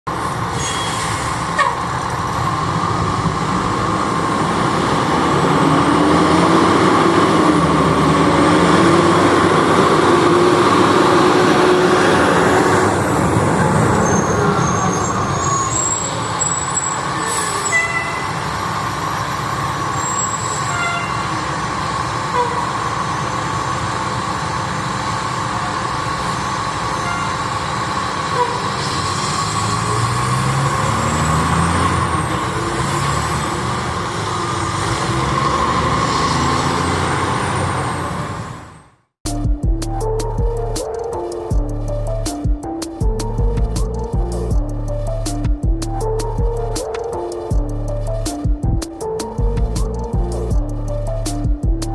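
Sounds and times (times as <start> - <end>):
fire truck diesel engine driving by: 0.1 - 39.0
road noise: 0.1 - 51.9.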